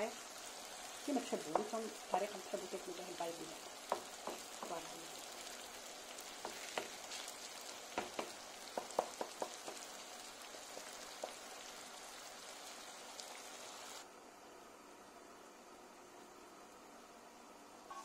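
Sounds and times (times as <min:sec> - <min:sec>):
sauce sizzling in frying pan: 0:00.0 - 0:14.1.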